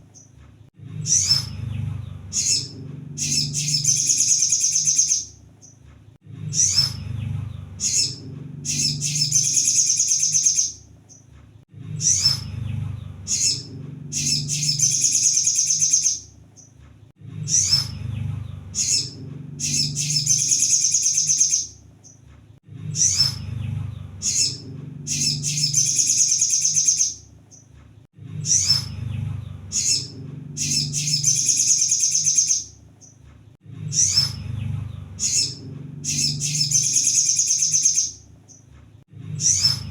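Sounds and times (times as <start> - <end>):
low hum: 0.7 - 5.4, 6.2 - 15.5, 17.2 - 21.9, 22.6 - 37.4
bird chirps: 1.0 - 5.8, 6.4 - 11.3, 11.9 - 16.8, 17.4 - 22.2, 22.9 - 27.7, 28.4 - 33.2, 33.9 - 38.7, 39.4 - 39.9
bird singing high rapid trill: 1.0 - 5.8, 6.5 - 11.2, 12.0 - 16.7, 17.5 - 22.2, 23.0 - 27.6, 28.4 - 33.1, 33.9 - 38.6, 39.4 - 39.9.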